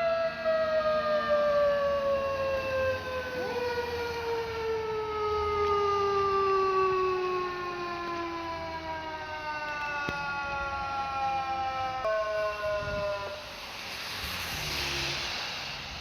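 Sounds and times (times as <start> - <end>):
fire engine siren winding down: 0.0 - 16.0
rush of passing truck: 11.8 - 16.0.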